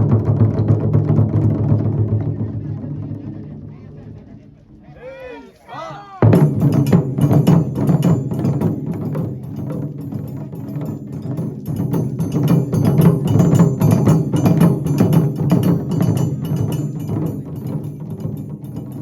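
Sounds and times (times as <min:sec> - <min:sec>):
drum ensemble playing: 0:05.4 - 0:18.8.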